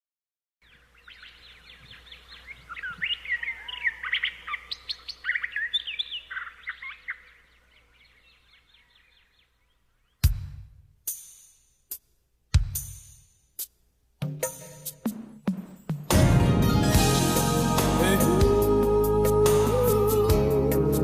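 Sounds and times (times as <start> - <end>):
birds chirping and singing: 0.6 - 10.2
sudden loud hit: 16.1 - 18.0.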